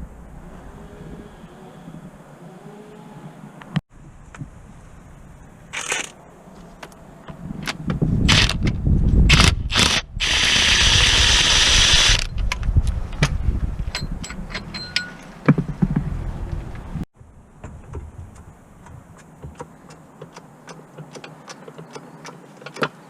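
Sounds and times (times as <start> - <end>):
power tool running: 9.7 - 12.3
tool clanks and knocks: 13.2 - 16.0.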